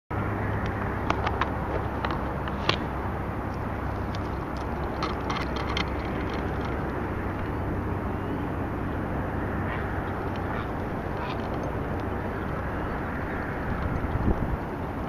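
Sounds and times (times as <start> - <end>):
low outdoor rumble: 0.1 - 15.0
light clicks and ticks: 0.6 - 7.7, 10.0 - 14.8.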